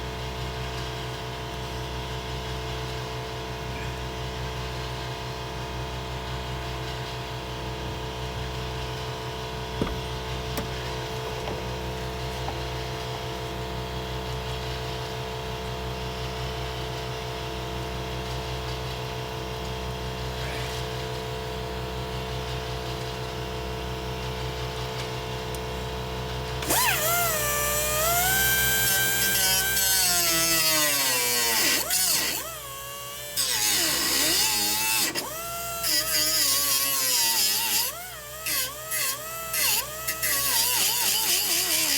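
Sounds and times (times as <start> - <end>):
steady mechanical hum: 0.0 - 41.9
power tool whining: 9.6 - 13.2, 26.6 - 41.9.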